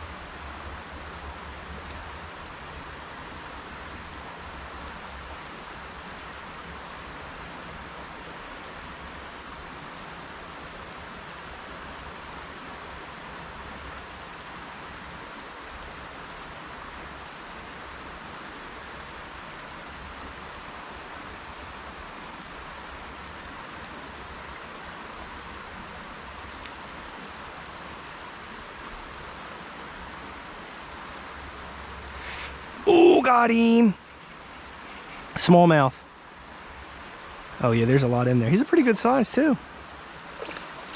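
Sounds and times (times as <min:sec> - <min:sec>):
creek water flowing: 0:00.0 - 0:40.9.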